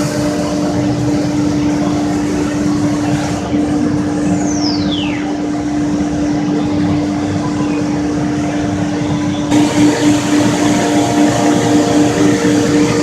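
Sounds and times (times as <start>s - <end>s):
cnc router running: 0.0s - 13.0s
high whine falling in pitch: 9.5s - 13.0s.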